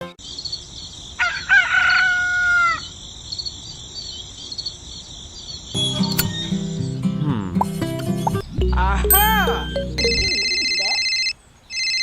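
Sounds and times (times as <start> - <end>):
insects chirring: 0.2 - 7.2
rooster crowing: 1.2 - 2.9.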